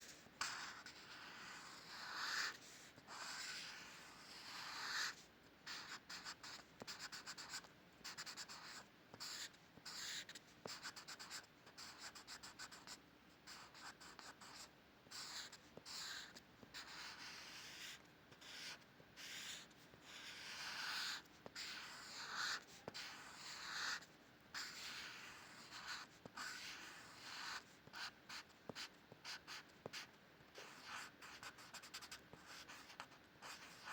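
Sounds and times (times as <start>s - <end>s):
drawing tool scratching paper: 24.6s - 29.6s.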